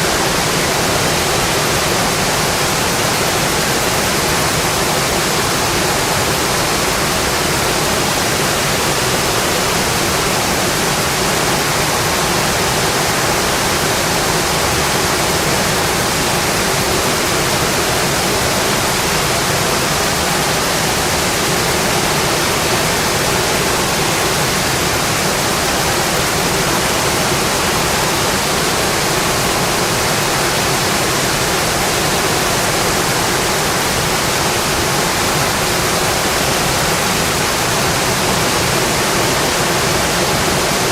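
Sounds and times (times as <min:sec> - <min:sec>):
heavy rain on a metal roof: 0:00.0 - 0:40.9.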